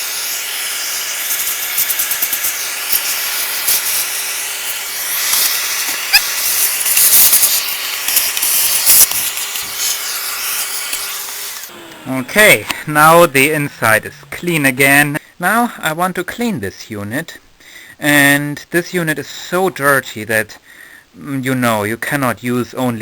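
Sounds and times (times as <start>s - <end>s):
hiss of air blowing: 0.0s - 11.7s.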